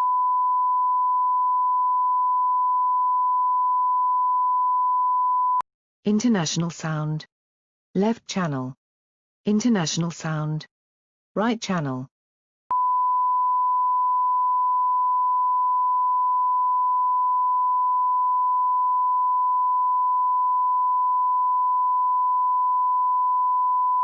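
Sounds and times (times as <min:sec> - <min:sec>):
sine-wave line-up tone: 0:00.0 - 0:05.6, 0:12.7 - 0:24.0.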